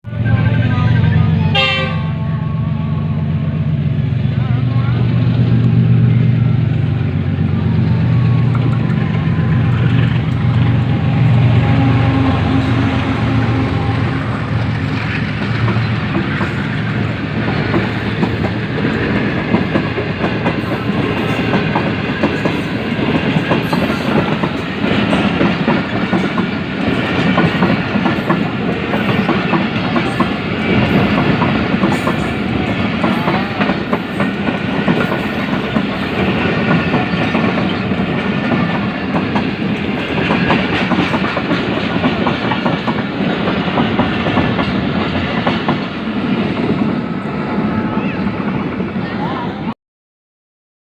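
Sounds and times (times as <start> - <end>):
train rumbling: 0.0 - 49.7
wheels clattering on track: 14.5 - 46.8.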